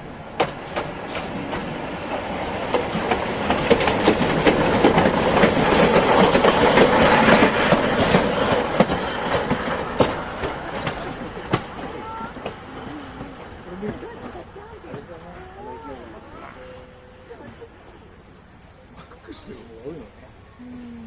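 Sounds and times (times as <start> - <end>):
train wheels clicking over track: 0.0 - 16.2
train running on rails: 0.0 - 20.5.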